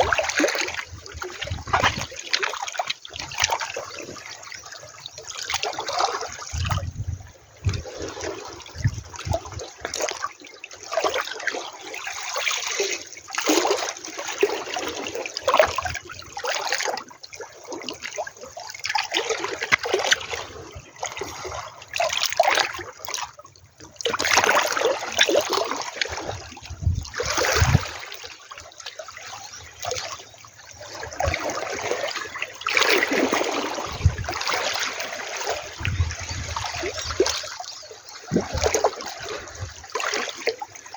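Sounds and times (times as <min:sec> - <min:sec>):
low rumbling thumps: 0:26.7 - 0:27.8
waves washing on shore: 0:29.2 - 0:40.9.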